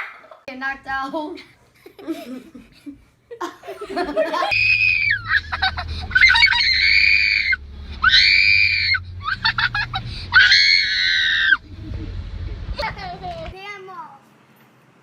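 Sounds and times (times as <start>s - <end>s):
high-pitched screams: 4.5s - 11.7s.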